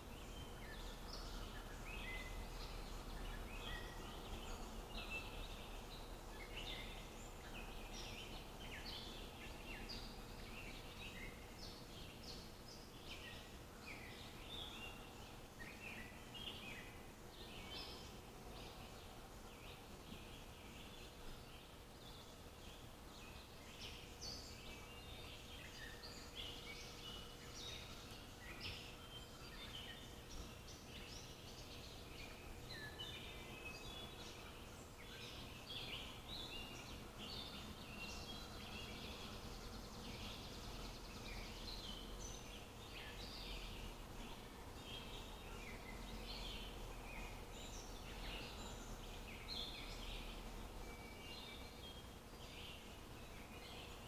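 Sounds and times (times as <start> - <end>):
faint background noise: 0.0 - 54.0
small birds chirping: 0.0 - 54.0.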